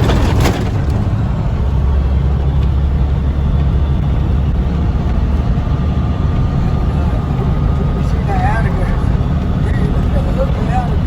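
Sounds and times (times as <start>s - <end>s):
road noise: 0.0s - 11.0s
truck engine rumble: 0.0s - 11.0s.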